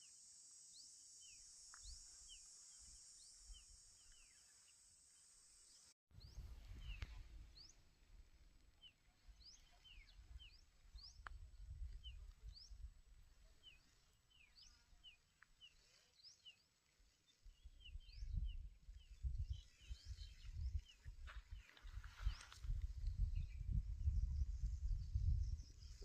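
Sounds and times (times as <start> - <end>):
small birds chirping faintly: 0.0 - 26.0.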